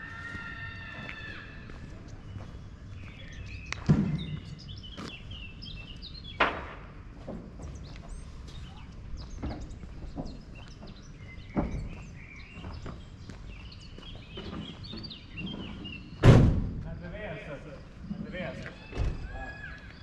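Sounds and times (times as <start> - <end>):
outdoor background noise: 0.0 - 20.0
small birds chirping: 0.5 - 6.5, 7.5 - 16.2, 16.9 - 20.0
loud sharp knocks: 6.4 - 6.9, 16.2 - 16.8.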